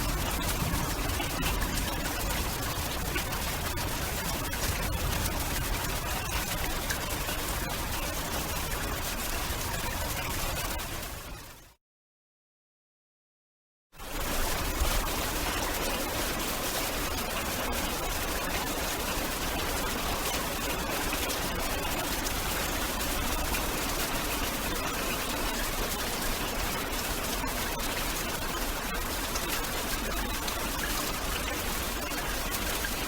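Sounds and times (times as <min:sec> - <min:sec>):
heavy rain falling: 0:00.0 - 0:09.0.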